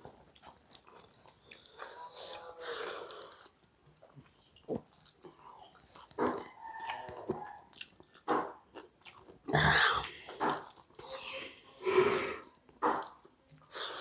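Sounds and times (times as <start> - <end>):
chewing and mouth noises: 0.0 - 11.6.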